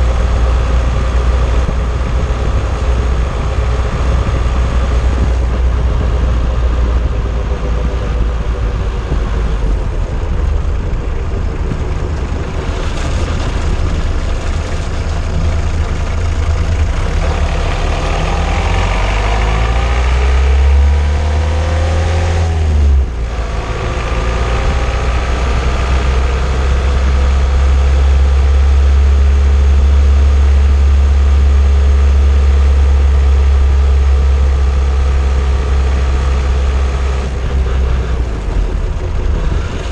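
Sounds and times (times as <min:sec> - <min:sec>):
car engine running: 0:00.0 - 0:39.9
road noise rumble: 0:00.0 - 0:39.9.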